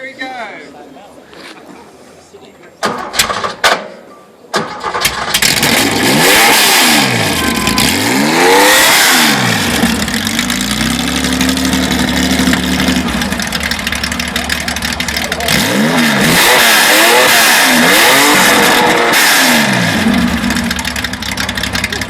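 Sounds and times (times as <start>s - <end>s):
sharp knocks: 2.8s - 4.0s
car engine starting and revving: 4.7s - 22.0s
car engine idling: 7.0s - 22.0s.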